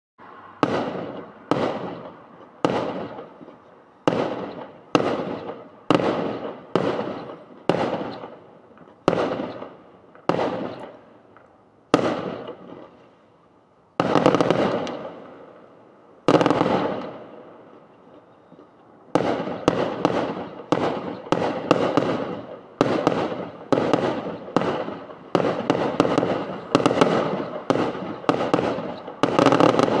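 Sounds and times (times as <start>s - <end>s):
fireworks bangs: 0.4s - 13.2s, 13.9s - 30.0s.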